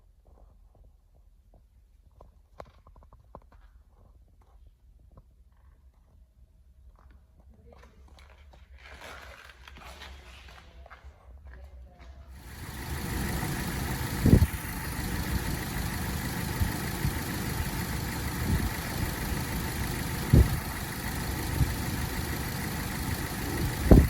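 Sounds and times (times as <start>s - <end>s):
car engine idling: 12.4s - 24.0s
low engine pulses: 12.4s - 24.0s.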